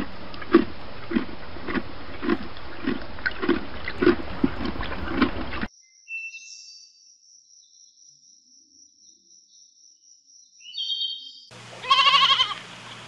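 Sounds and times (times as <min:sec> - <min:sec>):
goat bleating: 0:11.8 - 0:12.6.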